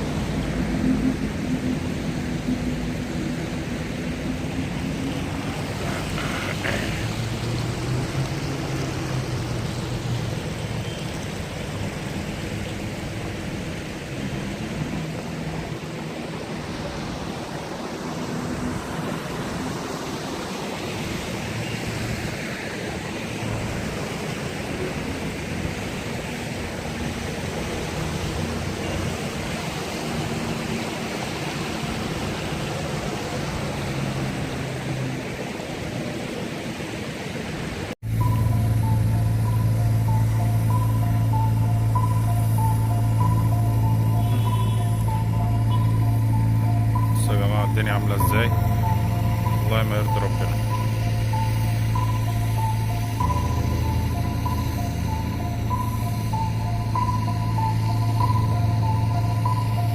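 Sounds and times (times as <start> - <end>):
heavy rain: 0.0 - 59.9
wind: 0.0 - 59.9
low hum: 38.0 - 59.9.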